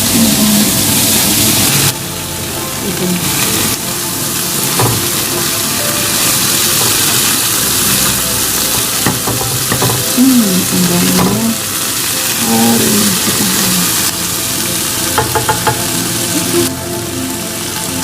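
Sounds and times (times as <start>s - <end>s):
stir-fry sizzling in a pan: 0.0s - 18.0s.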